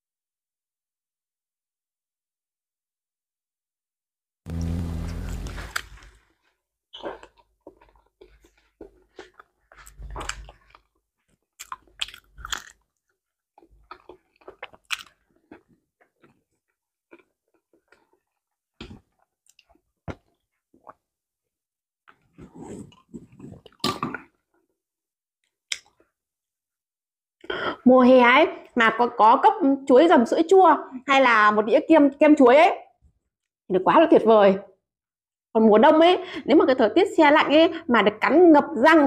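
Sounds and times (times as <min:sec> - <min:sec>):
chewing with wet mouth smacks: 0:11.6 - 0:12.8.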